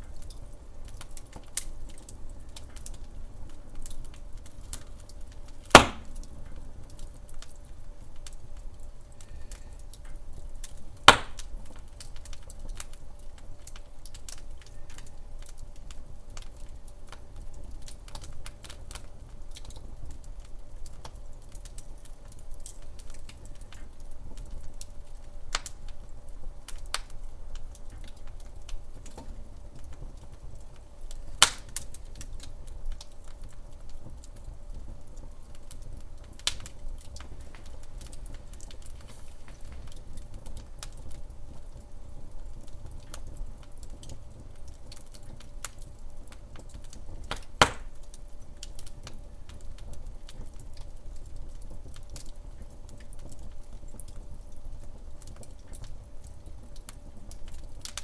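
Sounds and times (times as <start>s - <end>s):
fire low rumble: 0.0s - 58.0s
log fire crackling: 0.0s - 58.0s
loud sharp fire pops: 5.6s - 6.3s, 11.0s - 11.5s, 31.4s - 32.0s, 36.4s - 40.9s, 47.3s - 48.0s.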